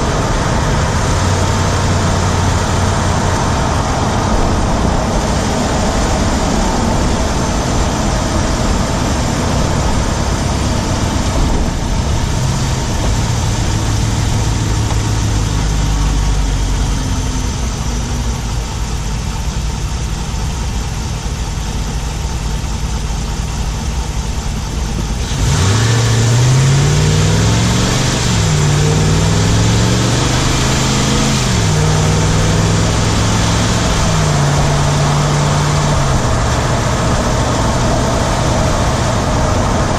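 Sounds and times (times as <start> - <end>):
engine ticking: 0.0 - 25.6
engine running while driving: 0.0 - 39.9
road and air noise: 0.0 - 39.9.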